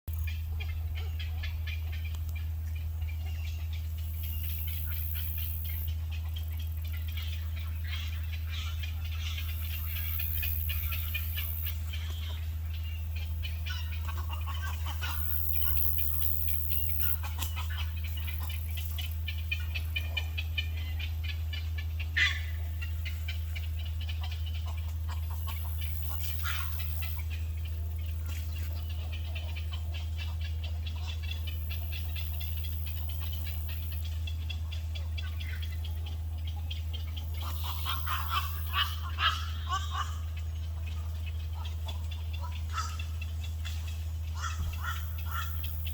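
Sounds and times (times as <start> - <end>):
flock of birds chirping: 0.1 - 45.9
steady low hum: 0.1 - 45.9
loud bird call: 28.4 - 45.9.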